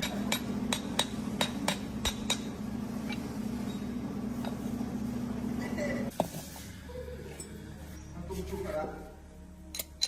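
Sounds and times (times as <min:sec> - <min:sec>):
steady low hum: 0:00.0 - 0:06.1.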